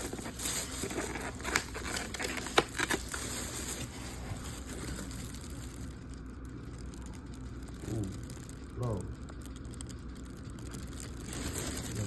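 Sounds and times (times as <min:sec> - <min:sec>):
food packaging rustling: 0:00.0 - 0:07.1, 0:10.6 - 0:12.0
low hum: 0:00.1 - 0:12.0.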